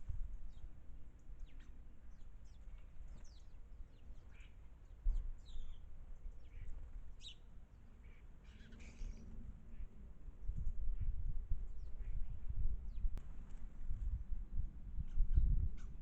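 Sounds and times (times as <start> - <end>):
low outdoor rumble: 0.0 - 16.0
birds chirping: 0.5 - 10.0.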